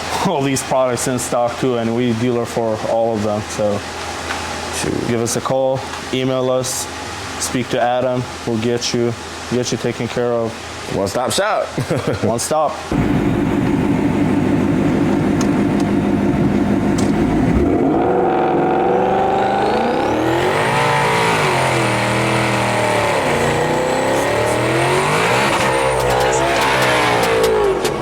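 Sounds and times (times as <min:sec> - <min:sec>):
car engine idling and revving: 0:12.9 - 0:28.0
high supercharger whine: 0:12.9 - 0:28.0.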